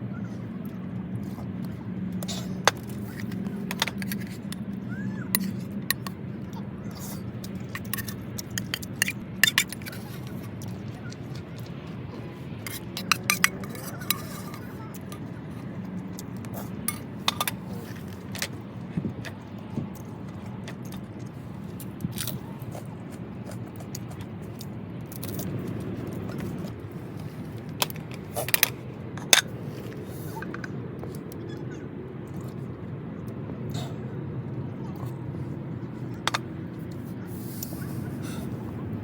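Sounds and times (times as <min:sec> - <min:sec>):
steady low hum: 0:00.0 - 0:39.0
small hard objects clinking: 0:07.5 - 0:11.4.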